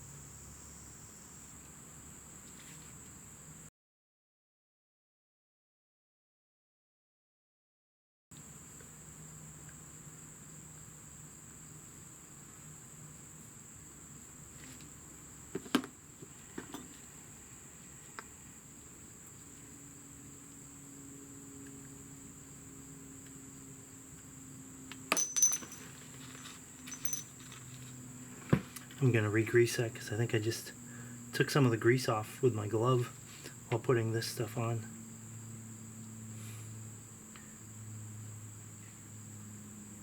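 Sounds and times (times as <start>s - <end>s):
faint high-pitched whine: 16.3s - 40.0s
light metallic clinks of tools: 25.1s - 26.0s, 26.8s - 27.7s.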